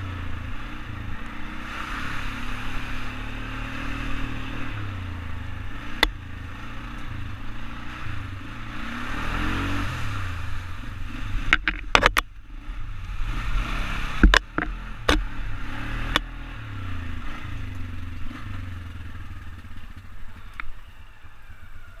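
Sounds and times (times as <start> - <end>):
atv engine running: 0.0 - 22.0
sharp knocks and clatter: 11.4 - 12.3, 14.2 - 15.4.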